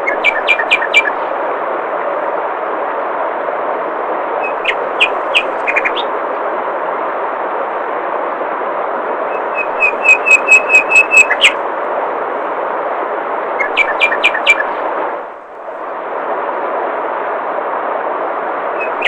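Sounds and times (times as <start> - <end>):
bird whistling sharp notes: 0.0 - 1.2, 4.4 - 6.1, 9.3 - 11.6, 13.6 - 14.7, 18.8 - 19.0.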